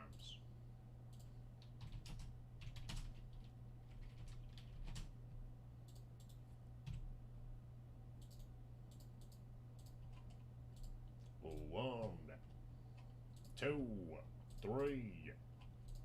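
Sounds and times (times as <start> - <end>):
steady low hum: 0.0 - 16.0
computer mouse and keyboard clicks: 1.1 - 5.1, 5.8 - 7.1, 8.2 - 13.6, 15.6 - 16.0.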